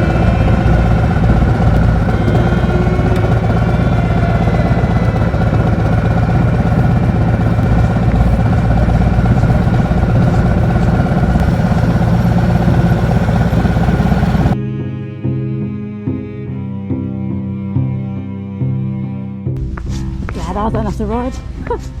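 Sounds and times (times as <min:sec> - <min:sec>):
motorcycle engine idling: 0:00.0 - 0:14.6.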